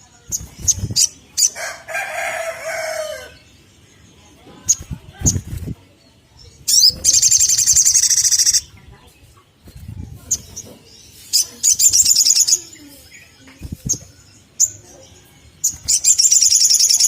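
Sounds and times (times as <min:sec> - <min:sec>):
bird sharp chirps: 0:06.6 - 0:08.8, 0:10.3 - 0:14.9, 0:15.6 - 0:17.0
bird high trill: 0:15.8 - 0:17.0.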